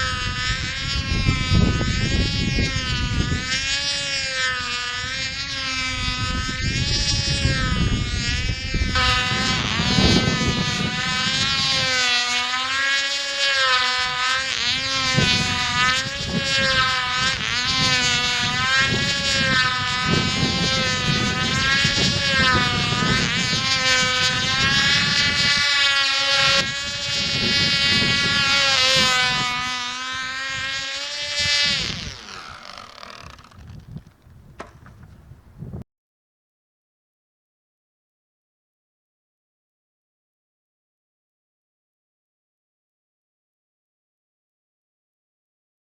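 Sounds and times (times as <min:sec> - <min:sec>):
model airplane engine buzzing: 0:00.0 - 0:35.8.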